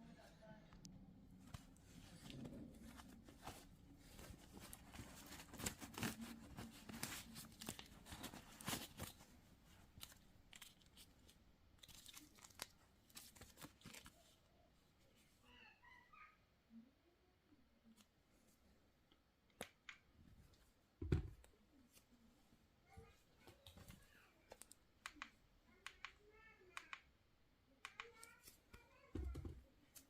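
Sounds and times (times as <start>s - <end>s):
wrapping tearing and crinkling: 9.9s - 14.2s.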